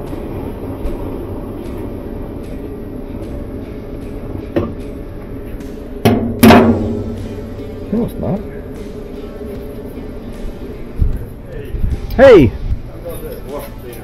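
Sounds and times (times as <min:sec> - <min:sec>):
loud metal clanks: 0:06.0 - 0:07.8.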